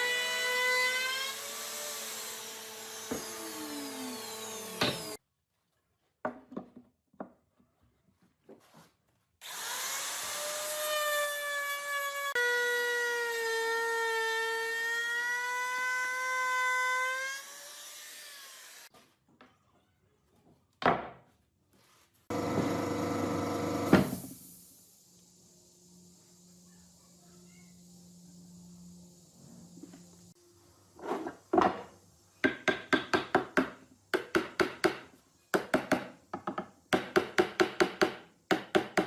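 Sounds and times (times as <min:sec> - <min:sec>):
electric power tool motor whining: 0:22.3 - 0:24.3.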